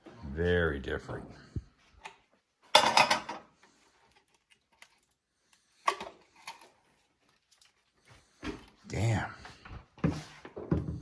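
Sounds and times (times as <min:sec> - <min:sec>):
plastic parts clicking and clattering: 0:04.0 - 0:07.8.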